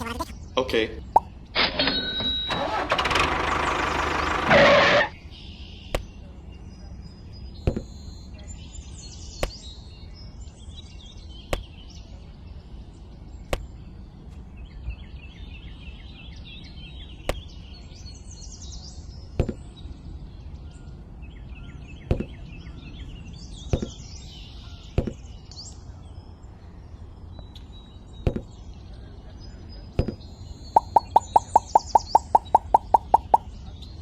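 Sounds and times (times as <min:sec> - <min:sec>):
small birds chirping: 0:00.0 - 0:01.5, 0:05.1 - 0:28.9, 0:29.6 - 0:34.0
sharp knocks: 0:30.8 - 0:33.4.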